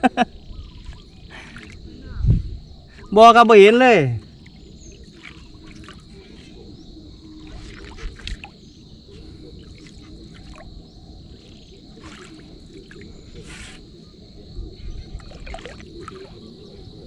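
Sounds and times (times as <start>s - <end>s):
water sloshing and splashing: 0.4s - 2.0s, 4.2s - 14.0s, 15.1s - 17.0s.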